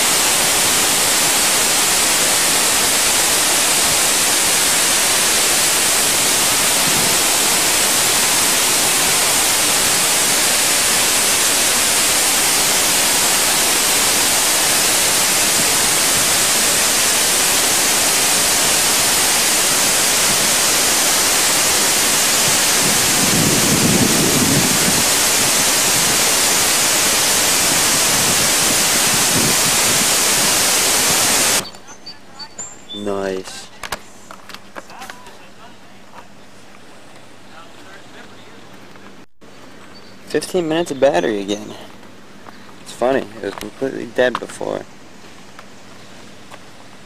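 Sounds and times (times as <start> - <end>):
falling water rushing: 0.0 - 31.6.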